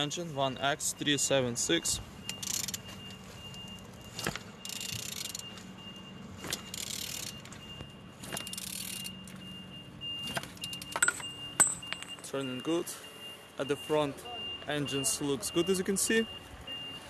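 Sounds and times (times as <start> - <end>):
metal clicks and scraping: 2.3 - 2.9, 4.1 - 5.6, 6.4 - 7.6, 8.2 - 9.4, 10.2 - 12.3
engine turned over by hand: 6.4 - 7.6, 8.2 - 9.2.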